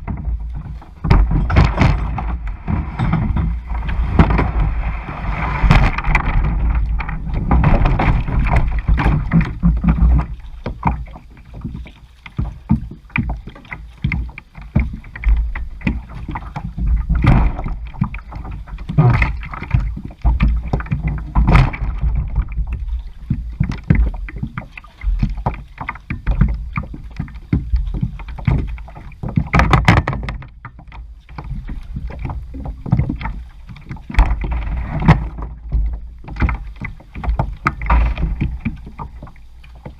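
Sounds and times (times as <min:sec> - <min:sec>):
steady low rumble: 0:00.0 - 0:11.5
paddle strokes splashing water: 0:00.0 - 0:39.9.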